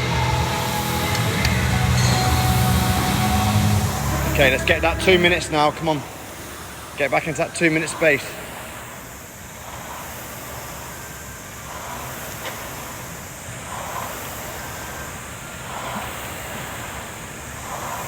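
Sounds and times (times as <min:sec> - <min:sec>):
rowing machine flywheel whooshing: 0:00.0 - 0:18.0.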